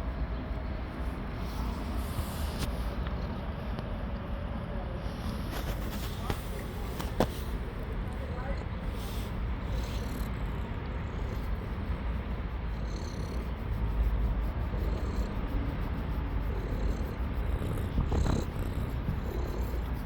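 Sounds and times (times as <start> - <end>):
cat purring: 5.5 - 20.0.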